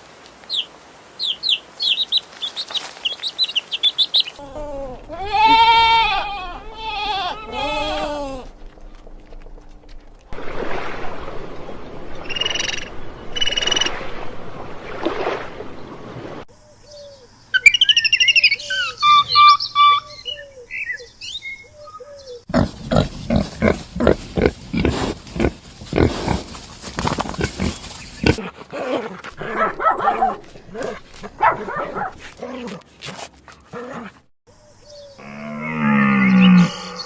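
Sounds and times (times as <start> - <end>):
birds chirping: 0.4 - 4.4, 15.5 - 28.4, 34.6 - 37.0
repeated low animal call: 35.2 - 37.0.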